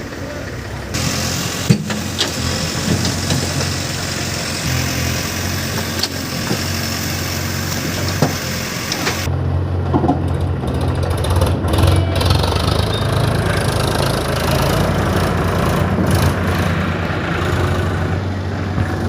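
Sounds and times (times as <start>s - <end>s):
heavy diesel engine running: 0.0s - 19.0s
high hiss: 1.0s - 9.3s.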